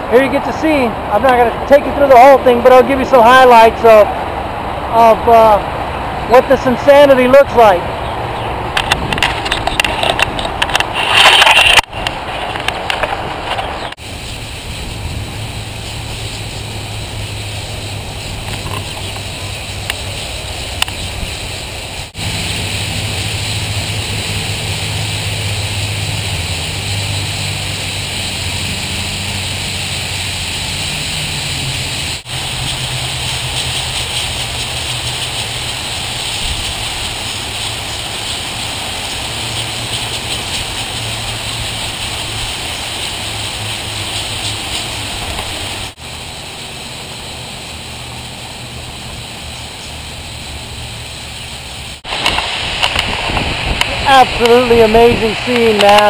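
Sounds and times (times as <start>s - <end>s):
flock of birds calling: 13.5s - 52.0s.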